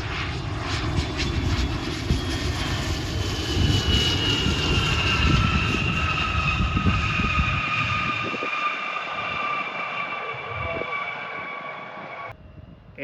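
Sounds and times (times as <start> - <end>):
jet engine whine: 0.0 - 13.0.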